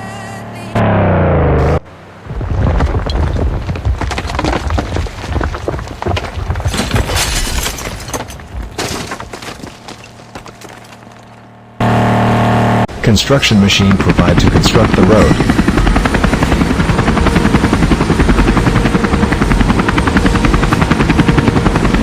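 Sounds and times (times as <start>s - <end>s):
cracking and crunching: 2.3s - 11.5s.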